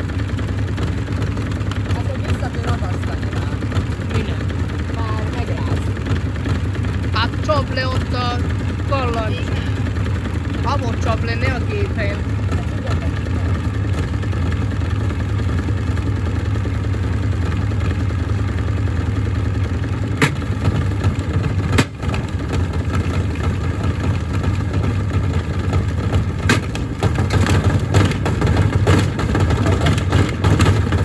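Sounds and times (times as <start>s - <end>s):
washing machine droning: 0.0s - 31.0s
bricks knocking in drum: 20.2s - 31.0s.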